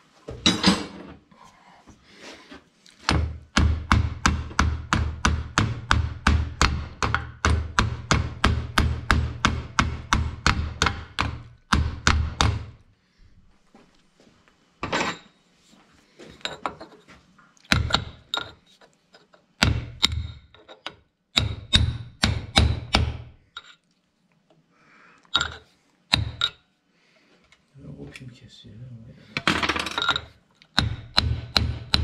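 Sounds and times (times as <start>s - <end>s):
hammer striking metal pin: 3.1s - 12.8s, 19.6s - 23.7s, 25.4s - 26.6s, 29.4s - 32.0s.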